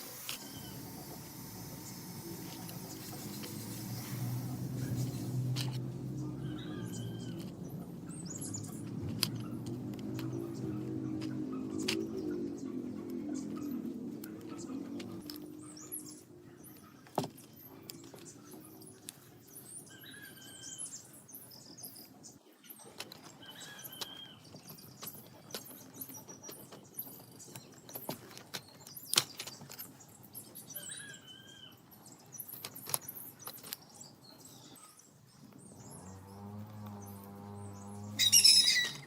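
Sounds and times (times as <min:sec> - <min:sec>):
short chirping call: 0:38.2 - 0:39.0.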